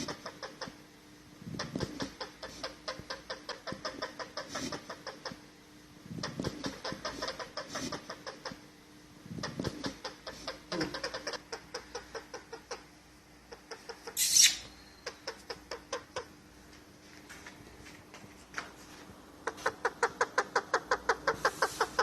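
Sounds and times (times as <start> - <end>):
parrot chirping and clicking: 13.5 - 16.3
parrot squawk: 13.5 - 16.3, 19.4 - 22.0.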